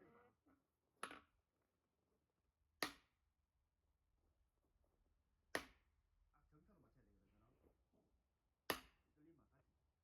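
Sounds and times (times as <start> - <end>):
axe striking firewood: 2.8 - 3.1, 5.5 - 5.9, 8.7 - 9.1.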